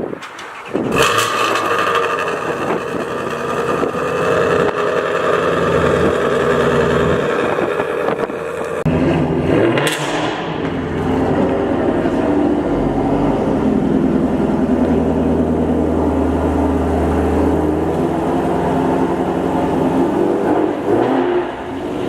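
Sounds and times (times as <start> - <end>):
car engine running: 0.7 - 9.6.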